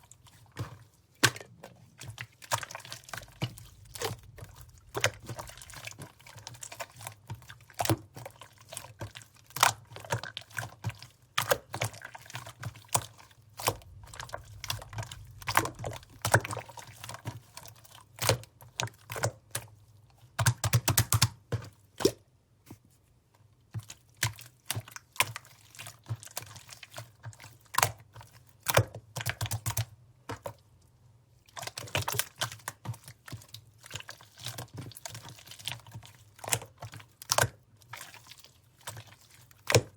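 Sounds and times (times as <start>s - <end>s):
slime squished by hand: 0.1s - 19.8s.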